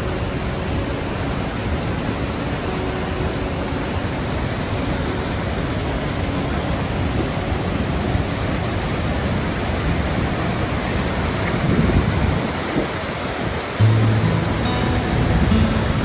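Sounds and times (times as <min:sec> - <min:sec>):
waterfall rushing: 0:00.0 - 0:16.0
low background music: 0:13.8 - 0:16.0.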